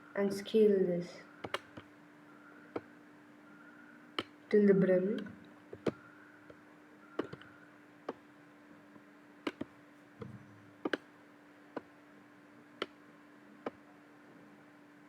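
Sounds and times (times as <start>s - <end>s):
faint steady hum: 0.0s - 15.0s
mouse and keyboard clicking: 1.4s - 1.9s, 4.2s - 4.4s, 7.2s - 7.5s, 9.5s - 10.3s.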